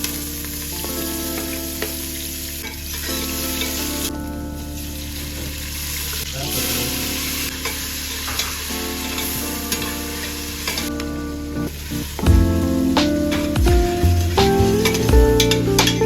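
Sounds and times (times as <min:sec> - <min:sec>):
food sizzling in a pan: 0:05.6 - 0:10.9.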